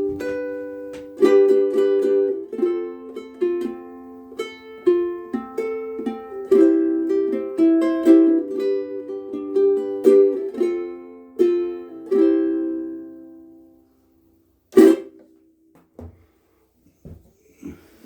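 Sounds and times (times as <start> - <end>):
ukulele plucked notes and chords: 0.0 - 13.8, 14.7 - 15.3.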